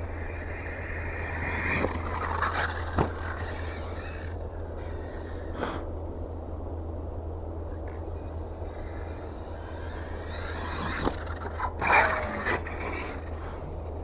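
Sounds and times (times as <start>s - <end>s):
electric motor whining: 0.0s - 5.6s, 7.9s - 14.0s
toy truck hitting ground: 1.4s - 4.4s, 10.2s - 13.3s.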